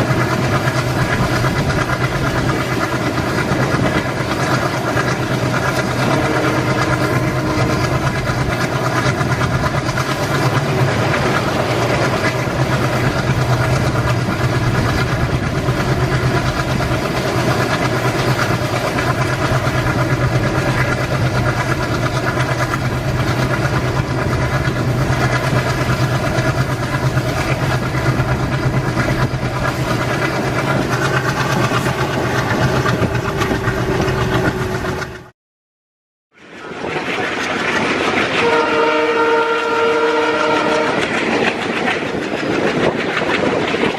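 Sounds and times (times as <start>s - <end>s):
train locomotive engine hum: 0.0s - 35.3s, 36.4s - 43.9s.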